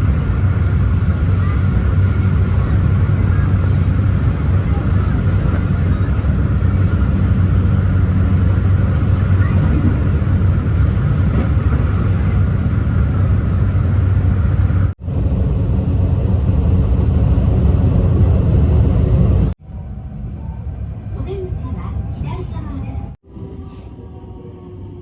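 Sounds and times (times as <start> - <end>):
passenger train rumbling: 0.0 - 25.0.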